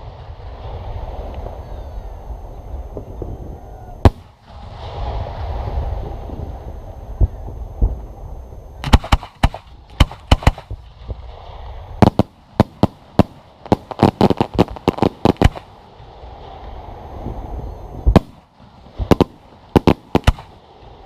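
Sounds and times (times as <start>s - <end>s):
fireworks bangs and cracks: 4.0s - 6.6s, 8.8s - 16.8s, 18.0s - 21.0s.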